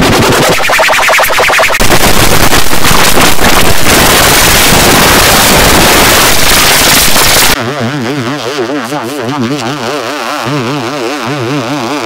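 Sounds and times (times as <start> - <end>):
harsh rushing noise: 0.0 - 7.6.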